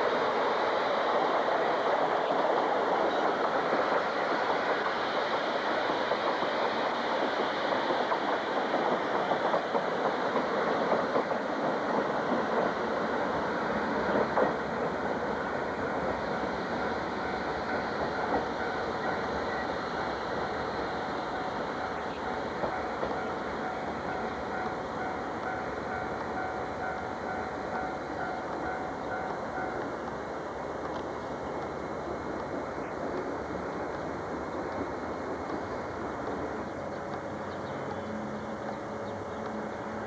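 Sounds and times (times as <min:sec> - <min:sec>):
train running on track: 0:00.0 - 0:40.0.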